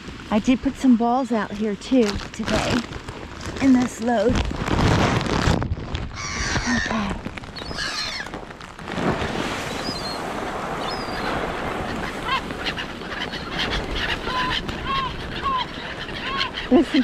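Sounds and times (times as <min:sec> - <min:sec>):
honking bird calls: 0:06.2 - 0:08.3, 0:10.8 - 0:17.0.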